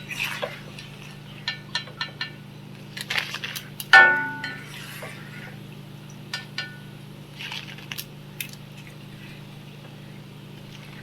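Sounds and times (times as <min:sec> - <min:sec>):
steady low hum: 0:03.6 - 0:07.4
kitchen utensils clinking: 0:04.0 - 0:04.8.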